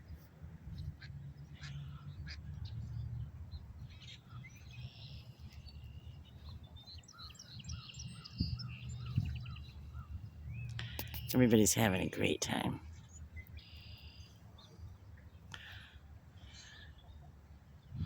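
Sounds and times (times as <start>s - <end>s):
birds chirping and calling: 1.0s - 14.8s.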